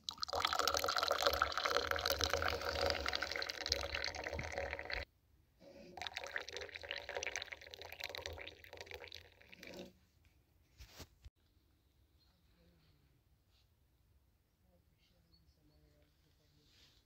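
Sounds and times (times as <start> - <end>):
tea pouring into a glass: 0.0 - 5.0, 5.9 - 9.9.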